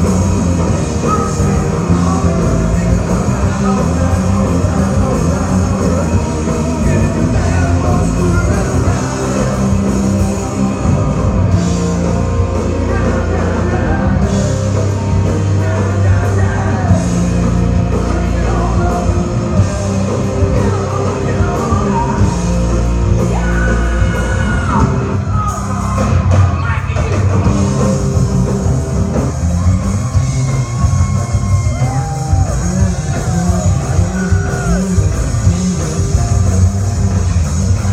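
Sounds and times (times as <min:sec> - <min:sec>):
person singing: 0:00.0 - 0:28.6
live rock band playing: 0:00.0 - 0:37.9.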